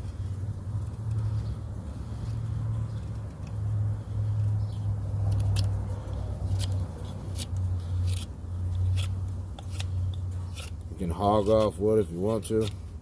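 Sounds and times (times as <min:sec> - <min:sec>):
knife scraping wood shavings: 0:05.2 - 0:12.9.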